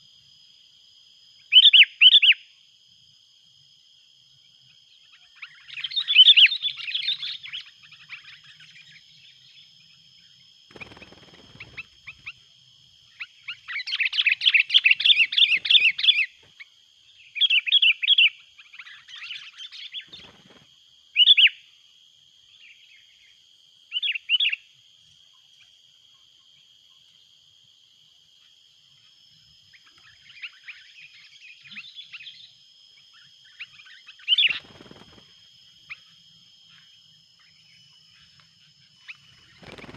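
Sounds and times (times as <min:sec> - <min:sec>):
birds chattering loudly: 0:10.7 - 0:12.4, 0:13.2 - 0:16.4, 0:33.9 - 0:35.2, 0:39.0 - 0:39.9.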